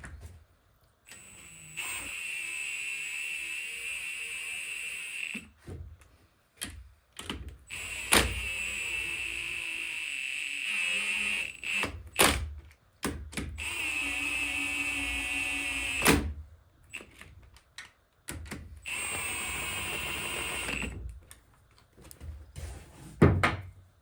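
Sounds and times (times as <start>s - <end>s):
power driver whine: 18.9s - 21.0s.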